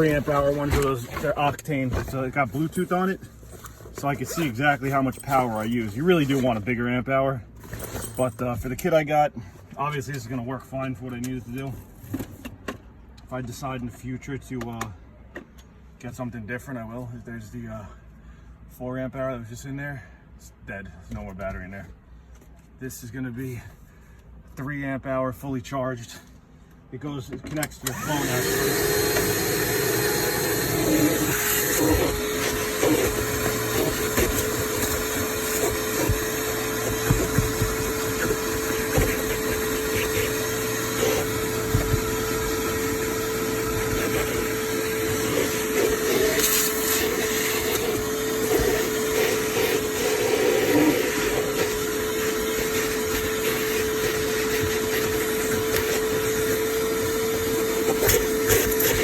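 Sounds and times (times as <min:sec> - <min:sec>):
wet dry vacuum whining: 0:00.0 - 0:06.8, 0:27.6 - 0:59.0.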